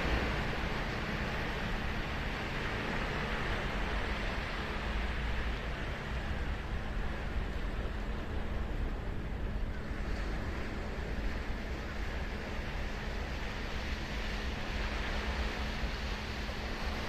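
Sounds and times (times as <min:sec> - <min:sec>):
ocean surf breaking: 0:00.0 - 0:05.0.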